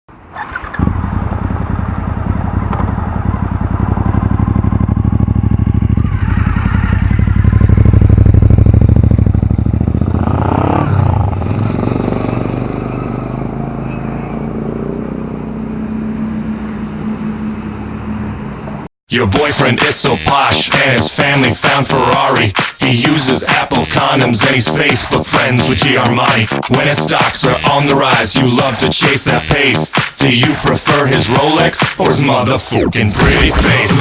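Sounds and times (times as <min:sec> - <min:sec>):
motorcycle engine running: 0:00.2 - 0:18.6.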